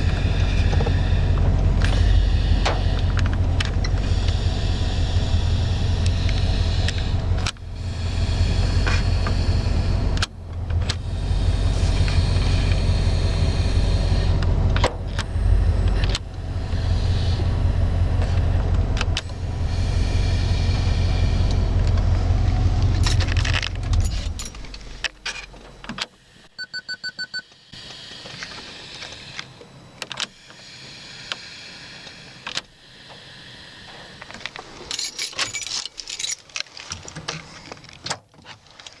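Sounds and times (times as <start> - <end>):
pickup truck engine running: 0.0 - 25.7
hiss of vacuum bleeding off: 19.4 - 22.8, 30.4 - 34.3
keys jangling: 22.9 - 25.5, 34.8 - 37.1.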